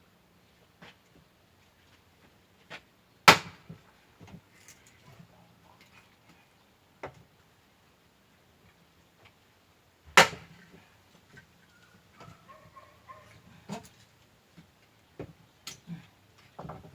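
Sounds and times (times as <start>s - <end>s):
axe chopping firewood: 3.2s - 3.8s, 10.1s - 10.7s.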